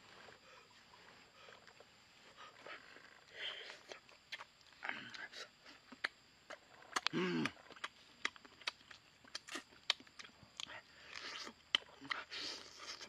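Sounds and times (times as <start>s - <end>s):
man chewing with wet crunches: 0.0s - 13.0s.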